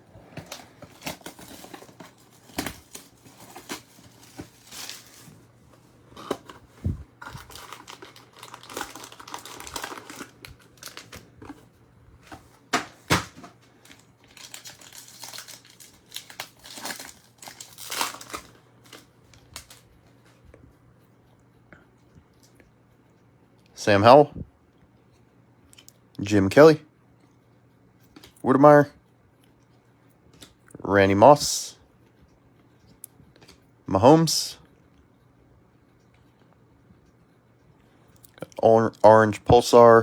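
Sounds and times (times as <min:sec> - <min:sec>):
card wrapper crinkling: 0:00.3 - 0:19.8.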